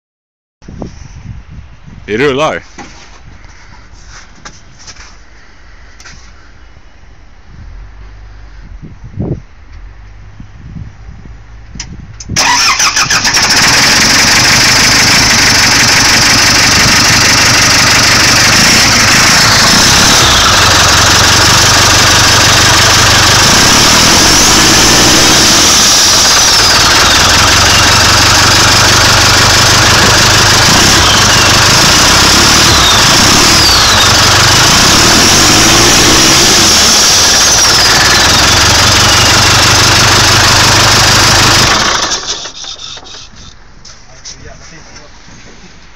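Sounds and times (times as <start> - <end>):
loud diesel engine revving: 12.4 - 42.8.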